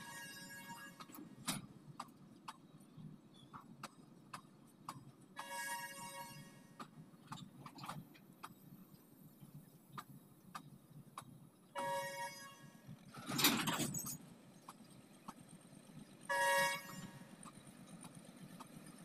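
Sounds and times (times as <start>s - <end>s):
locomotive horn: 0.0s - 1.1s, 5.4s - 6.8s, 11.7s - 12.9s, 16.3s - 17.3s
train wheel clicks: 1.0s - 2.7s, 3.3s - 5.3s, 6.8s - 11.7s, 13.0s - 19.0s.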